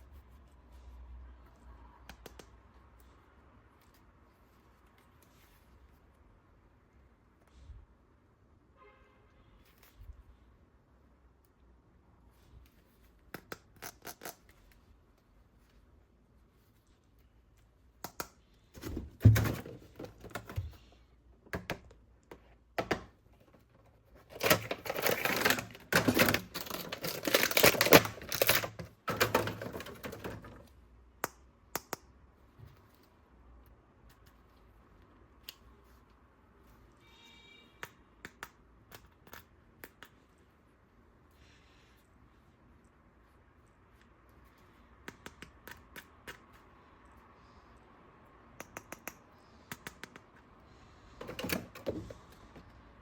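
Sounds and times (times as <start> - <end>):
plastic parts scraping: 22.3 - 30.7, 51.1 - 52.8
plastic toy parts clicking: 24.2 - 30.6.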